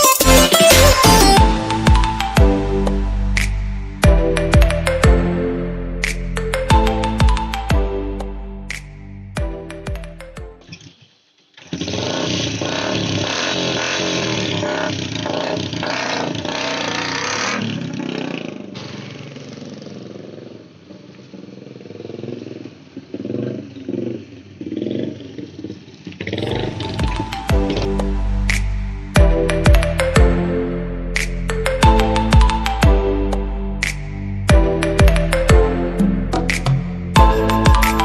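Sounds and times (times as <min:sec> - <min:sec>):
loud motorcycle engine revving: 0:11.6 - 0:28.0.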